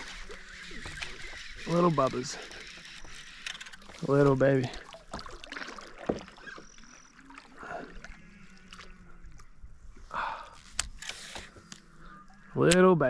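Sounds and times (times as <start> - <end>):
handling noises on a kayak: 0.0 - 6.9, 9.3 - 11.9
small water splashes: 0.0 - 9.7.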